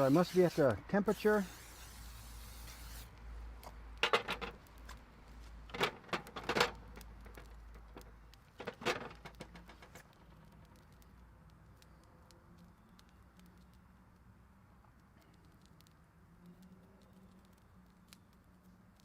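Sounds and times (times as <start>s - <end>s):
small ticks: 9.8s - 19.0s.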